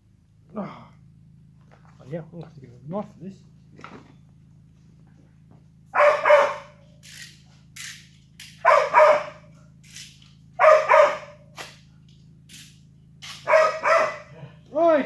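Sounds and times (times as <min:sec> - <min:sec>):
dog barking: 0:05.9 - 0:06.8, 0:08.6 - 0:09.5, 0:10.6 - 0:11.7, 0:13.4 - 0:14.5.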